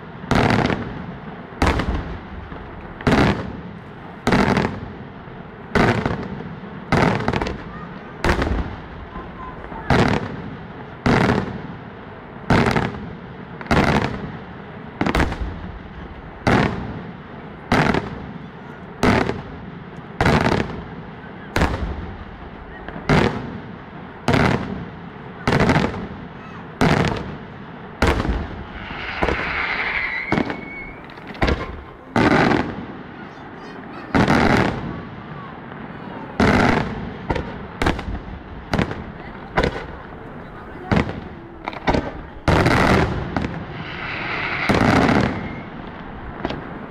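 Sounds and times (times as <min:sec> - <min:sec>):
fireworks bangs: 0:00.0 - 0:46.9
hissing firework whistle: 0:28.2 - 0:32.0, 0:42.7 - 0:46.5.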